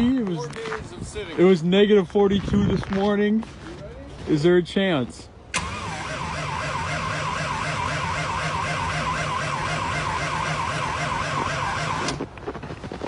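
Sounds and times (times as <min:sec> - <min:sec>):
starter cranking diesel engine: 0:05.5 - 0:12.2.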